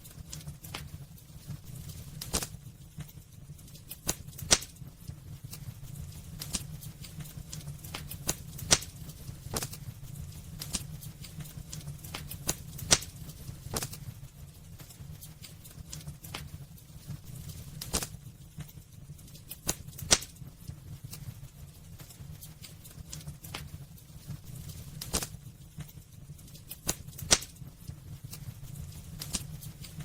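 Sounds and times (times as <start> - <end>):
low fire rumble: 0.0 - 30.0
wood fire crackling and popping: 0.0 - 30.0
loud wood snaps: 4.0 - 4.8, 7.6 - 9.8, 11.8 - 14.0, 19.6 - 20.4, 26.8 - 27.6.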